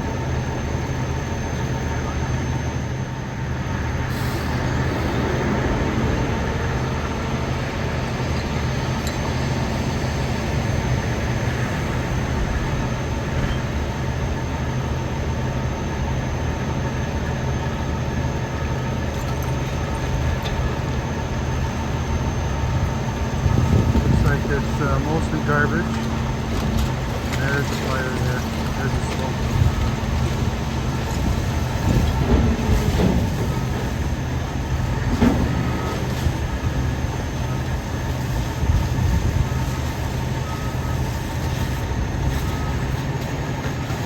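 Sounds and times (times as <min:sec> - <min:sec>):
diesel trucks idling: 0:00.0 - 0:44.0.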